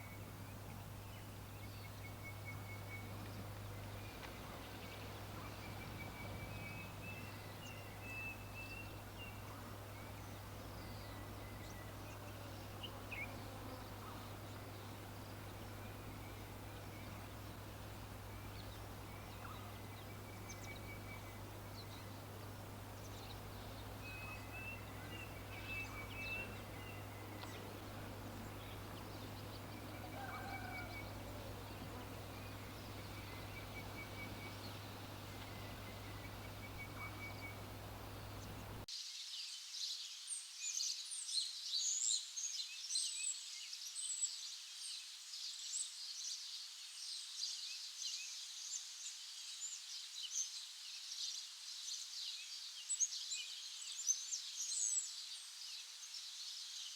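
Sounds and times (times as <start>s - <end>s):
birds chirping in trills: 0.0s - 38.8s
steady low hum: 0.0s - 38.9s.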